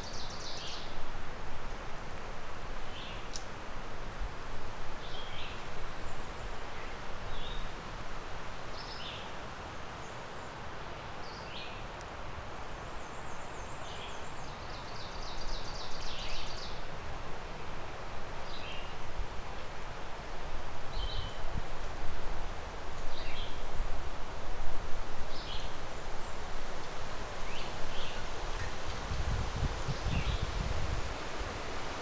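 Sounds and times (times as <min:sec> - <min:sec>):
songbirds chirping: 0:23.0 - 0:23.8, 0:25.3 - 0:32.0.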